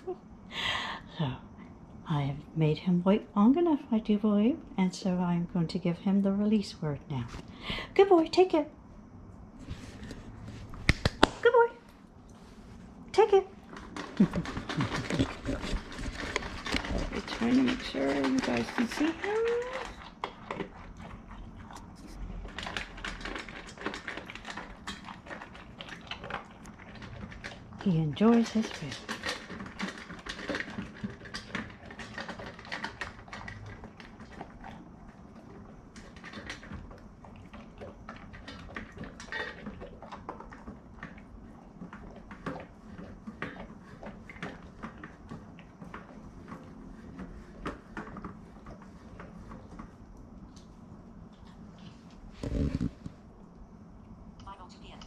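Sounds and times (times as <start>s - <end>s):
dog crunching dry food: 13.3s - 53.2s.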